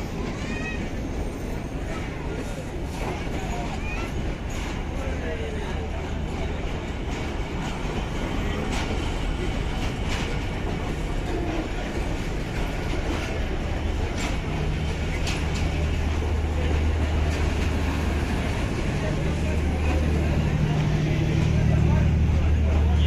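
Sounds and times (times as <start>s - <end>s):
train running on rails: 0.0s - 23.0s
sharp clicks of rails: 12.1s - 18.5s.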